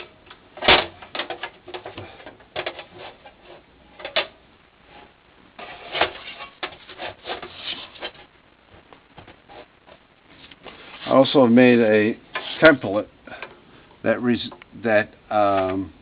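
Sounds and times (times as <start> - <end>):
parts clicking and knocking: 0.0 - 3.4.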